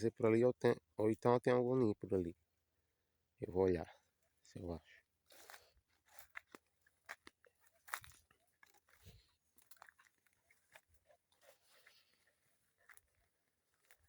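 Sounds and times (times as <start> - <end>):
dry leaves crunching underfoot: 5.3 - 14.0.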